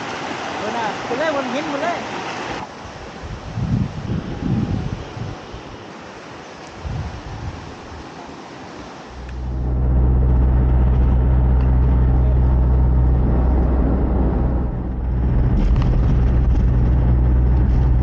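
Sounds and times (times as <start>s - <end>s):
engine and road drone: 9.1s - 18.0s.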